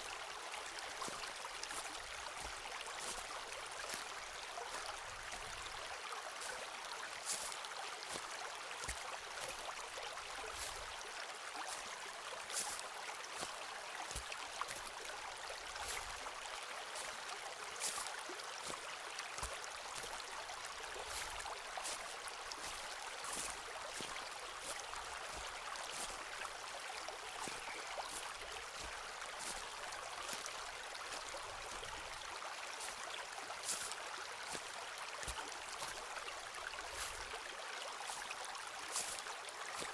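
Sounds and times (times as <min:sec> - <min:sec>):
stream rushing: 0:00.0 - 0:39.9
footsteps crunching on path: 0:01.0 - 0:05.5, 0:07.2 - 0:08.2, 0:10.5 - 0:10.9, 0:12.5 - 0:15.0, 0:17.8 - 0:18.8, 0:21.0 - 0:33.0, 0:33.6 - 0:37.4, 0:38.9 - 0:39.9.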